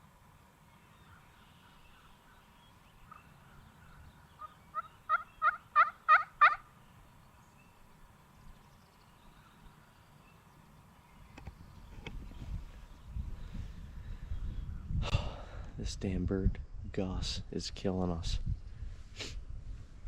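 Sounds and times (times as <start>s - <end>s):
faint low wind rumble: 0.0s - 20.0s
turkey yelps: 3.1s - 6.7s.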